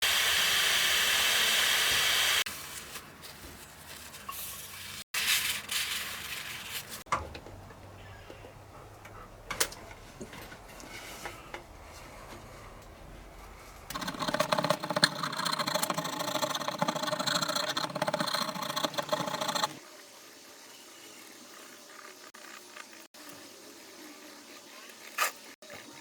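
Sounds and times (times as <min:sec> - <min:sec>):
power tool rattling: 0:13.9 - 0:19.8.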